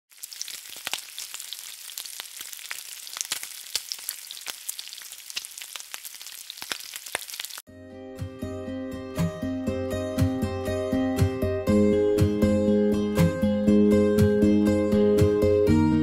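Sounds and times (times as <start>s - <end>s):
food frying with pops: 0.1s - 7.6s.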